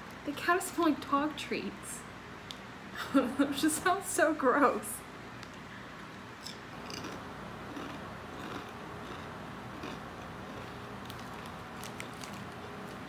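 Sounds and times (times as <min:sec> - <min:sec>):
chewing potato chips: 0:06.4 - 0:13.0.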